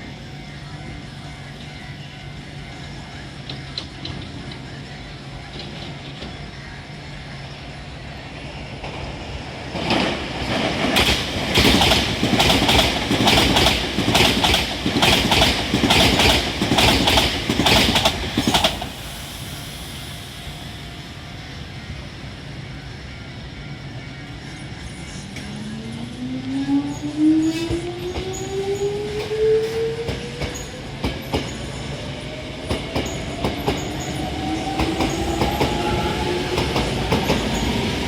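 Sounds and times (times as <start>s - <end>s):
low train rumble: 0.0s - 38.0s
train wheels clattering over rails: 9.7s - 19.4s, 29.1s - 38.0s
rising motor whine: 24.9s - 30.9s.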